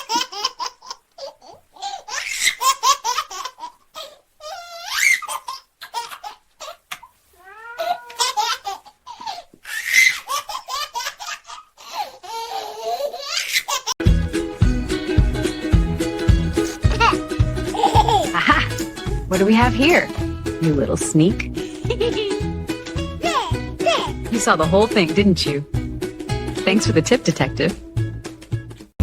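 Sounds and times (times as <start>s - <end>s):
baby laughing: 0.0s - 7.1s, 7.7s - 14.0s, 16.5s - 19.1s, 21.6s - 24.3s.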